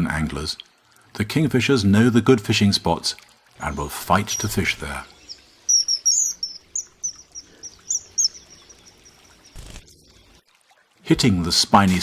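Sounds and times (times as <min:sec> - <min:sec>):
kingfisher shrill piping calls: 0:04.3 - 0:09.7.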